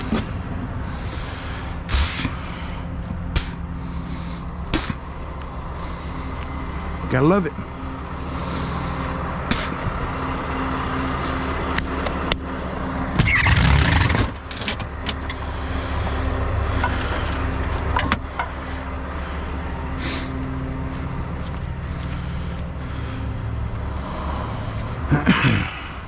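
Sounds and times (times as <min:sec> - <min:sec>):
truck engine idling: 0:00.0 - 0:26.0.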